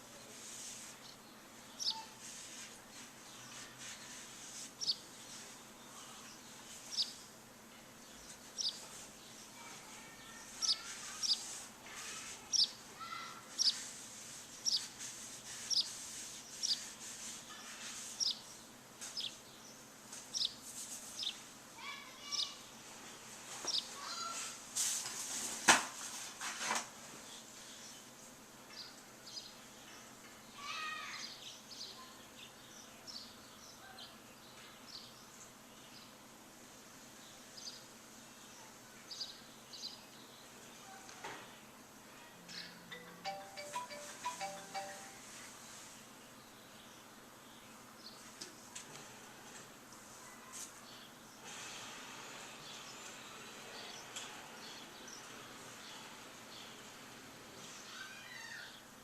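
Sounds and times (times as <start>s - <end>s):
faint background hiss: 0.0s - 59.0s
birds warbling chirps: 1.0s - 2.3s, 2.9s - 7.3s, 8.0s - 9.6s, 10.3s - 11.5s, 12.5s - 13.9s, 14.6s - 15.0s, 15.6s - 17.0s, 17.6s - 20.6s, 23.6s - 24.4s
bird high downward-sliding note: 42.9s - 45.4s.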